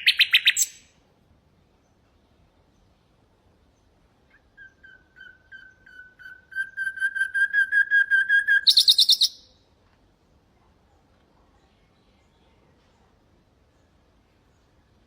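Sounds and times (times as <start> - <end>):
nightingale singing: 0.0 - 1.0, 3.7 - 9.6.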